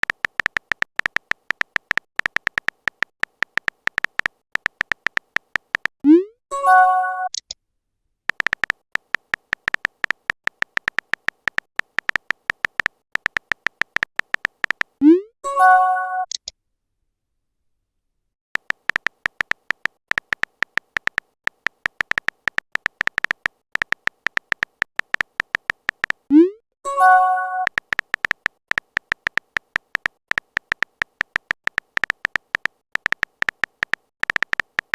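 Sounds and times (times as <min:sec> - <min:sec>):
phone keyboard typing clicks: 0:00.0 - 0:06.0, 0:08.3 - 0:15.0, 0:18.6 - 0:26.3, 0:27.0 - 0:34.9
short message chime: 0:26.9 - 0:27.7.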